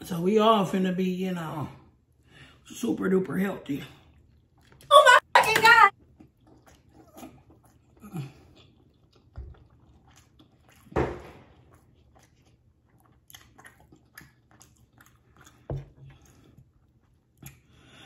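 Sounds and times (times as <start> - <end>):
close chewing with mouth clicks: 4.0 - 4.9, 5.9 - 18.0.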